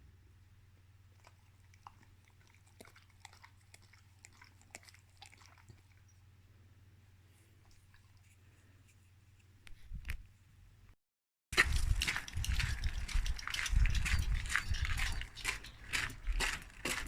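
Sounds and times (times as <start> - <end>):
low steady hum: 0.0 - 11.0
dog crunching a treat: 1.1 - 6.0, 11.6 - 17.0.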